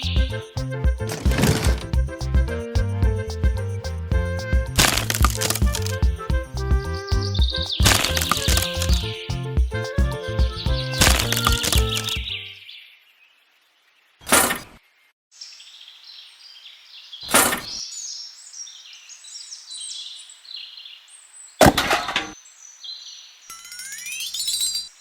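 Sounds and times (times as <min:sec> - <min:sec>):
small birds chirping and twittering: 0:10.4 - 0:21.7, 0:22.3 - 0:25.0.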